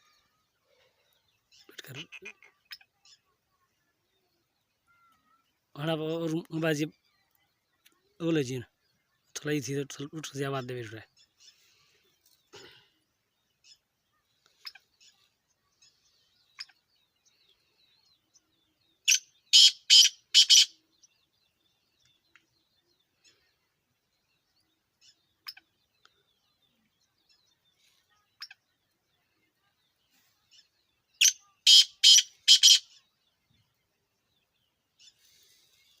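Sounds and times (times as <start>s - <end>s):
bird calling in sharp notes: 19.1s - 20.8s, 31.2s - 33.0s.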